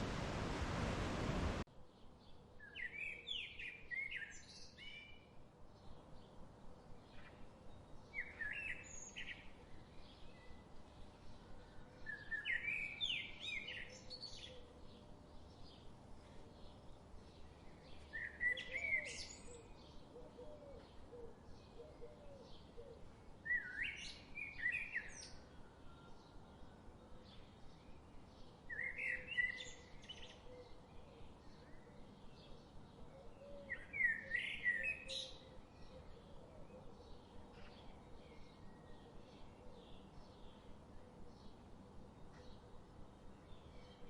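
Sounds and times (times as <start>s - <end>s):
songbird singing: 0.0s - 44.0s.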